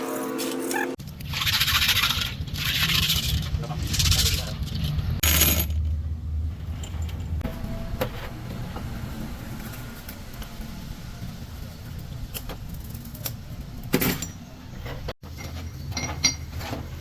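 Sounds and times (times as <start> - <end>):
steady low rumble: 1.0 - 13.9
metal parts clinking: 1.2 - 5.9.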